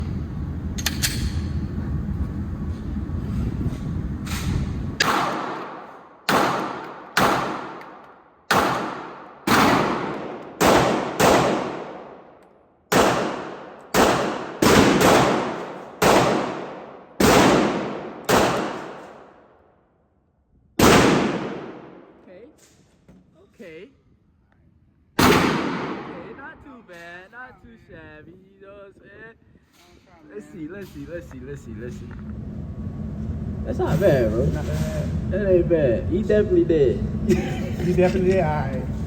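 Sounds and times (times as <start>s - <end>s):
low rumble: 0.0s - 6.2s, 31.0s - 39.0s
echoing gunshots: 5.0s - 19.5s, 20.8s - 22.2s, 25.2s - 26.6s.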